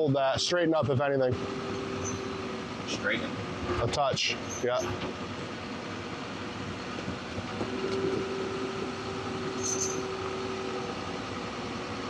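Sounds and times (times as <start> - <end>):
diesel engine running: 0.0 - 12.0
steady whine: 0.0 - 12.0.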